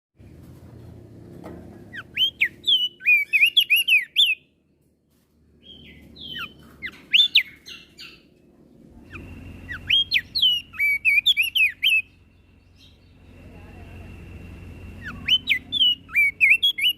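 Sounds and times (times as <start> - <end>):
low background hum: 0.2 - 16.9
bird singing whistled notes: 1.9 - 4.5, 5.6 - 8.2, 9.0 - 14.0, 14.8 - 16.9.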